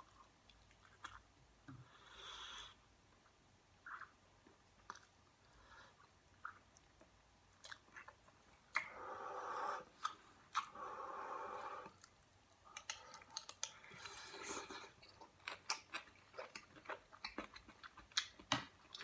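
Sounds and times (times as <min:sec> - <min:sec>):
chewing with wet mouth clicks: 0:04.8 - 0:05.2, 0:06.0 - 0:09.0, 0:11.9 - 0:19.0.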